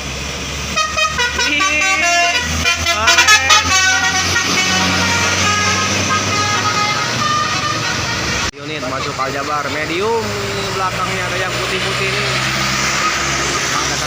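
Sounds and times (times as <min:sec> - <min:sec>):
bus engine running: 0:00.0 - 0:14.0
multi-tone musical bus horn: 0:00.7 - 0:09.1.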